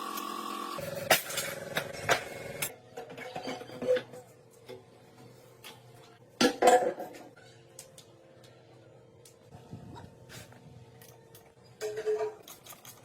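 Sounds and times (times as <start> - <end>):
metal tools clinking and knocking: 10.9 - 13.0.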